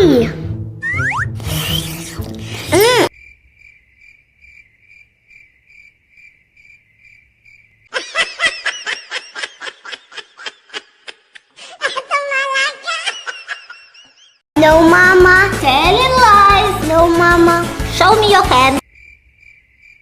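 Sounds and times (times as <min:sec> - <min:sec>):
cartoon music: 0:00.0 - 0:03.1
cricket chirping: 0:03.1 - 0:07.9, 0:18.8 - 0:20.0.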